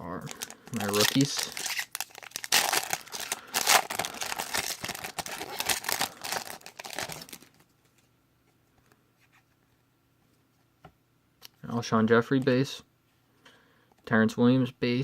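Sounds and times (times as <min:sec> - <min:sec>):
card pack wrapper crinkling and tearing: 0:00.1 - 0:07.6.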